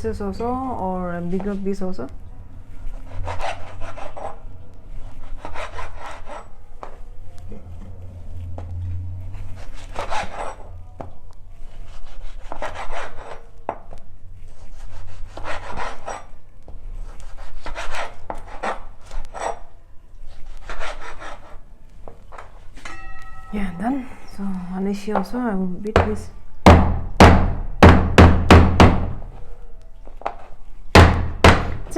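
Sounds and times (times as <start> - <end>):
knife sawing through meat: 11.7 - 13.5, 20.4 - 21.6.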